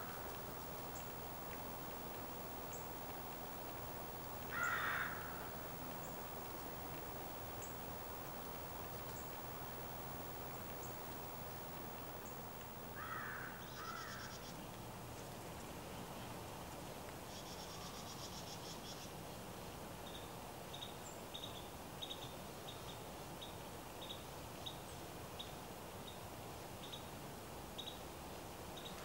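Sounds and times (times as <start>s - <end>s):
faint high ticks: 0.0s - 15.7s
outdoor background noise: 0.0s - 29.0s
bird harsh calls: 4.5s - 5.4s.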